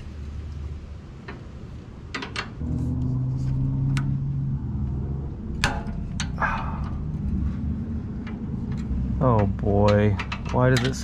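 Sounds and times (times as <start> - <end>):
vehicle engine running: 2.6 - 11.0.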